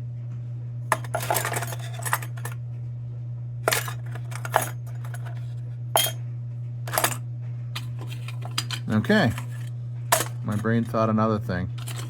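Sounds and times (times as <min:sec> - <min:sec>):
steady low hum: 0:00.1 - 0:12.0
small metal parts clinking: 0:00.9 - 0:02.6, 0:03.6 - 0:06.2, 0:06.9 - 0:07.2, 0:07.8 - 0:10.9, 0:11.8 - 0:12.0.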